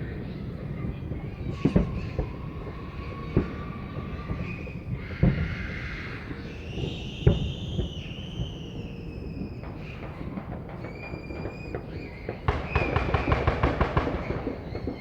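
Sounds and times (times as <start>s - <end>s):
firework bangs: 6.4s - 15.0s
firework whistle falling in pitch: 6.5s - 13.4s
fireworks crackling: 6.8s - 15.0s.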